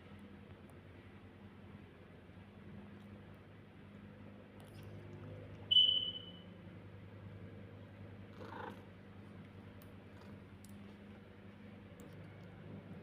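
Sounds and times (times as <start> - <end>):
cat purring: 8.2 - 9.1.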